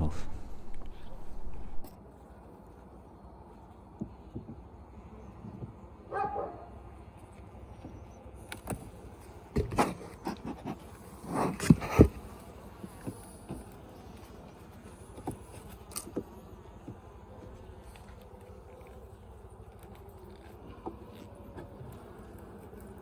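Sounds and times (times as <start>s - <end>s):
honeybees humming: 0.0s - 1.9s, 12.1s - 23.0s
dog barking: 6.1s - 6.7s.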